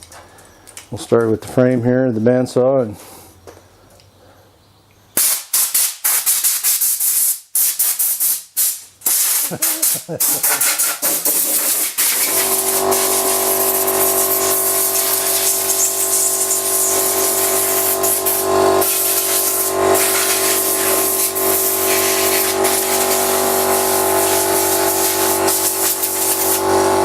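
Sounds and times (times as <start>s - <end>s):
air compressor running: 9.0s - 27.0s
air hiss from blow gun: 11.3s - 26.7s.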